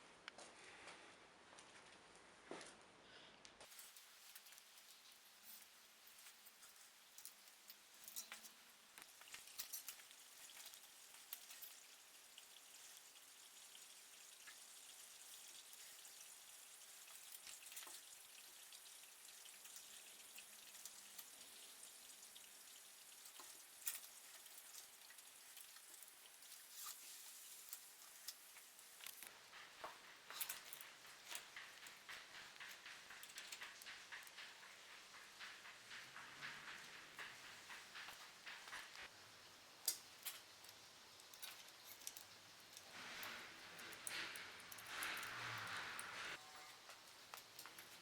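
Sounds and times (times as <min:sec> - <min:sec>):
small parts and tools clicking: 0:03.6 - 0:39.1, 0:39.7 - 0:48.0
soft rushing hiss: 0:03.7 - 0:48.0.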